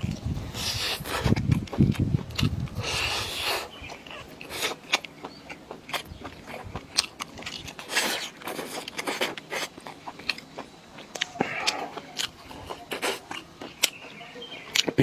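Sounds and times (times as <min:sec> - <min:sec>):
person chewing crunchy food: 0:00.0 - 0:15.0.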